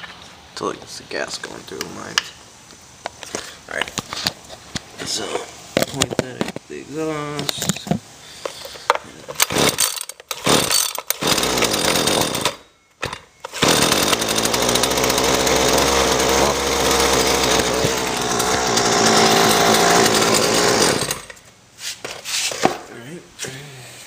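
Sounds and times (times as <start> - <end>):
string trimmer engine sputtering: 9.4 - 12.6, 13.5 - 21.4
two-stroke trimmer engine running: 9.4 - 12.6, 13.5 - 21.3.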